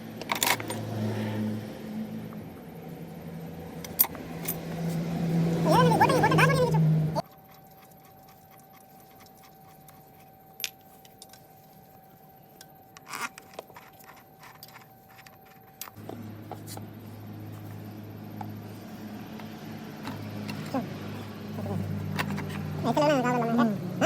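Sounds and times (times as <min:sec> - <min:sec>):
steady low hum: 0:00.0 - 0:24.0
light metallic clicks and clinks: 0:03.8 - 0:04.8.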